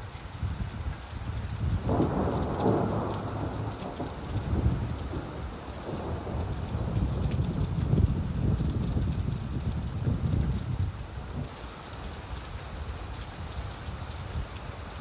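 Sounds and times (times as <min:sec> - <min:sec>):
steady rainfall: 0:00.0 - 0:15.0
thunder rumbling: 0:01.8 - 0:11.5.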